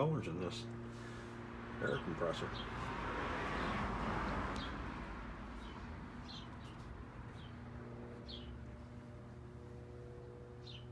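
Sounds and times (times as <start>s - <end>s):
low steady hum: 4.8s - 10.9s
small bird chirping: 5.5s - 7.6s.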